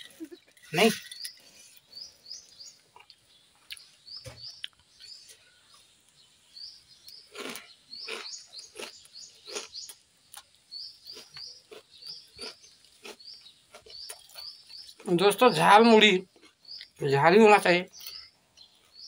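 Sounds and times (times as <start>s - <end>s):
crunchy food being chewed: 0.0s - 6.2s, 7.0s - 15.2s, 16.2s - 17.0s
small bird chirping: 0.0s - 19.0s.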